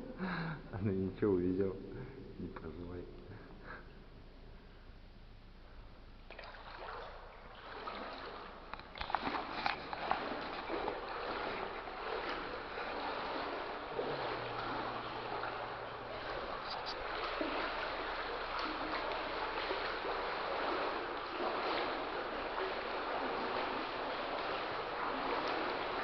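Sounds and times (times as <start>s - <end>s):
legs sloshing through water: 6.3s - 26.0s
sharp water splashes: 6.3s - 26.0s.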